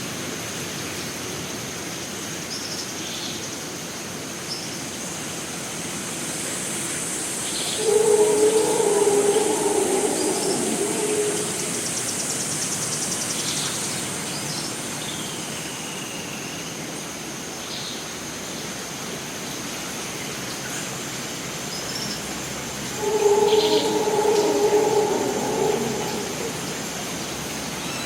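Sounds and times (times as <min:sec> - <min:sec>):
rain hiss: 0:00.0 - 0:28.0
whistled bird note: 0:07.7 - 0:12.2, 0:22.9 - 0:27.3
high-pitched insect drone: 0:07.7 - 0:12.5, 0:22.8 - 0:28.0
low droning animal call: 0:07.7 - 0:12.5, 0:22.8 - 0:28.0.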